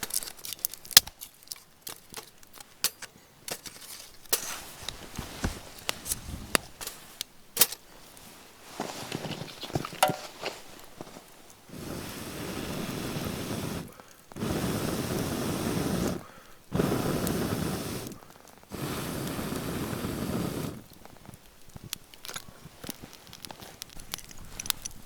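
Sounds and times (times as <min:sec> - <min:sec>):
person blowing air into fire: 0:11.7 - 0:20.9.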